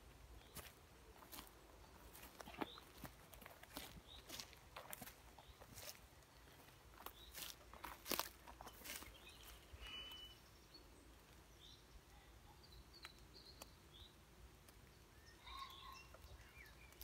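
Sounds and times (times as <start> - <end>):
faint bird chirps: 8.6 - 14.2, 14.9 - 17.0.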